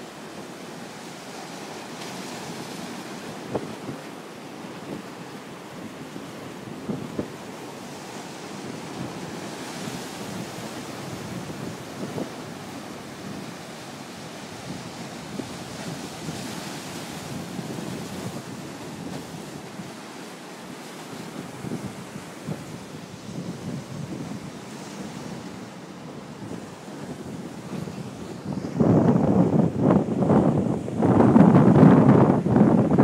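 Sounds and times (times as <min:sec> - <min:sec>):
waves washing onto beach: 0:00.0 - 0:33.0
wind buffeting microphone: 0:05.9 - 0:19.9, 0:21.2 - 0:33.0.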